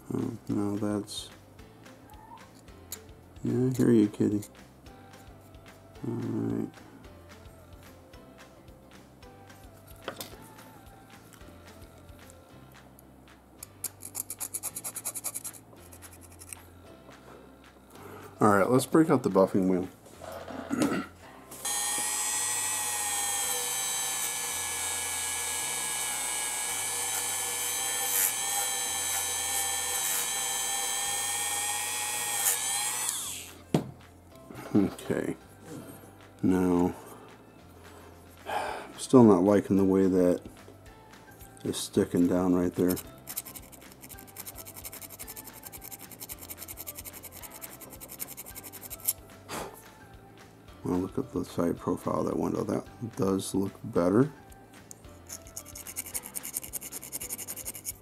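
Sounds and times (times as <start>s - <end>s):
hand file rasping on metal: 13.9s - 16.6s, 42.8s - 49.2s, 55.3s - 58.0s
rotary tool high whine: 21.6s - 33.6s, 55.3s - 58.0s.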